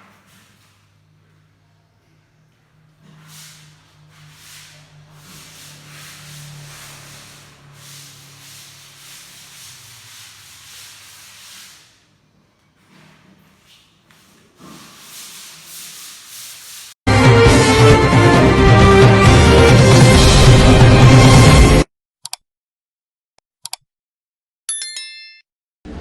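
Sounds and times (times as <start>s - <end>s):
hissing spray noise: 3.4s - 11.8s.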